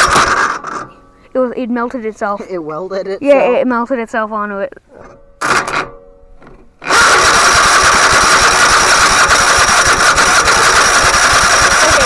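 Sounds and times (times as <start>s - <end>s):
electric starter cranking engine: 0.0s - 1.3s, 5.0s - 12.0s.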